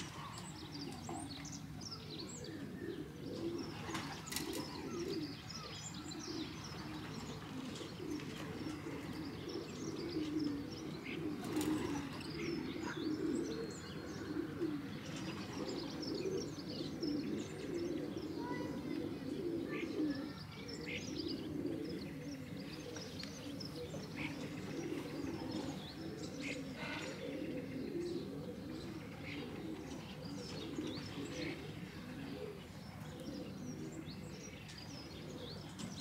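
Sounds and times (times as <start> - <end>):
pigeons cooing: 0.0 - 36.0
small birds chirping: 0.0 - 36.0.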